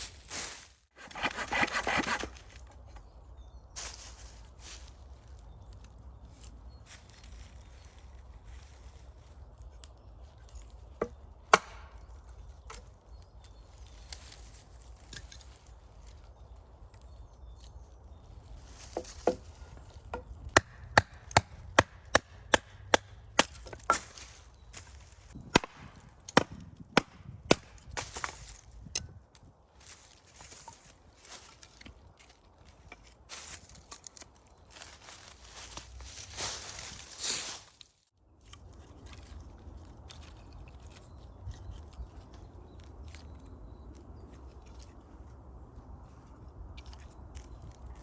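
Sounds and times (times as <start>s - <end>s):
chopping strikes on wood: 11.0s - 12.0s, 20.1s - 24.2s, 25.4s - 28.4s.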